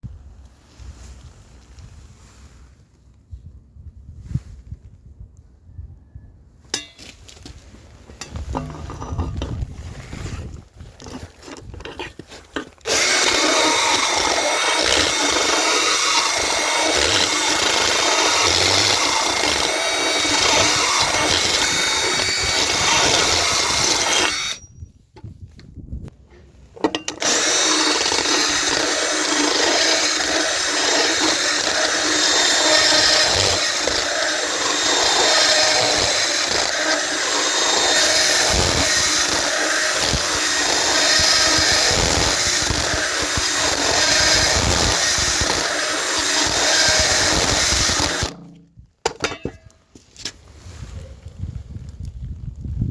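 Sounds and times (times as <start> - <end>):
power tool whining: 11.0 - 24.7, 26.9 - 48.6.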